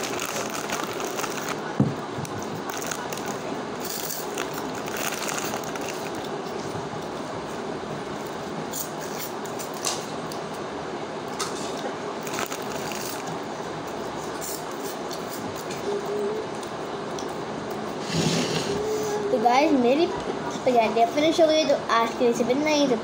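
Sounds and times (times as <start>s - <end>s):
crunchy snacks being chewed: 0.0s - 1.6s, 2.6s - 6.4s, 12.2s - 13.3s.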